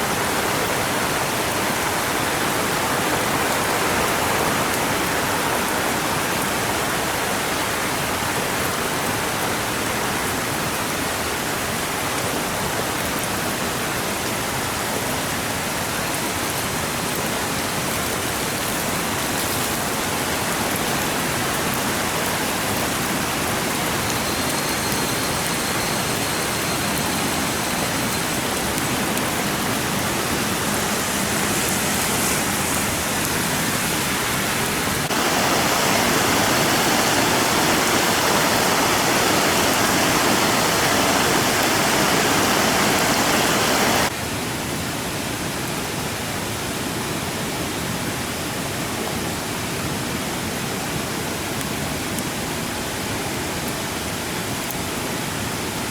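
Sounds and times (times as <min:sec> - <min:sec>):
steady rushing noise: 0:23.8 - 0:44.1.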